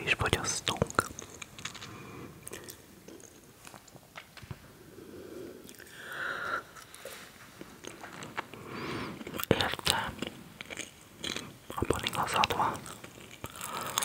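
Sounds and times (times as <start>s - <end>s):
chewing crunchy snack: 0.6s - 4.1s, 9.2s - 14.0s.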